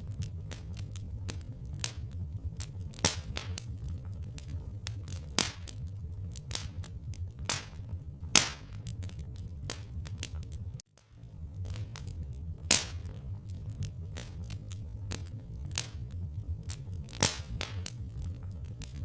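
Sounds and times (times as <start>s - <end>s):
low rumble: 0.0s - 19.0s
wood fire crackling: 0.0s - 19.0s.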